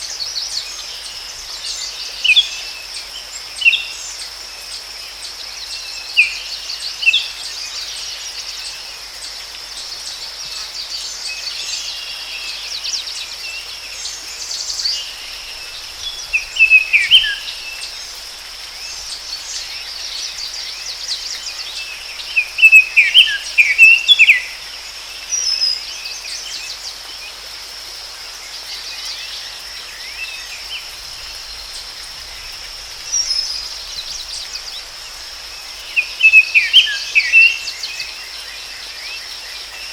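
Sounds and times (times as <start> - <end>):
birds chirping: 14.6 - 24.6, 29.3 - 39.9.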